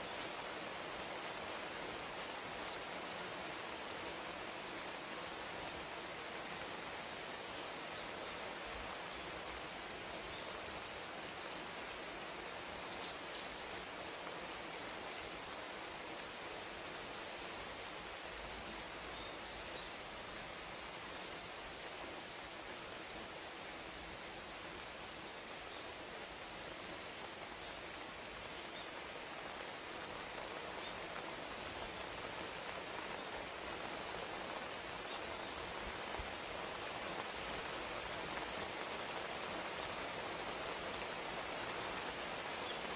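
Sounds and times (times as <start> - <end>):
steady rain hiss: 0.0 - 42.9.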